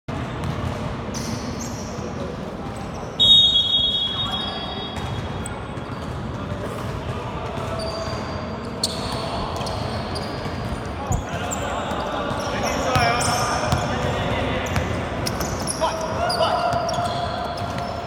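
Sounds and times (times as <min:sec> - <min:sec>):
sneaker squeaks on court: 0:03.0 - 0:06.4, 0:07.6 - 0:13.9, 0:14.6 - 0:18.0.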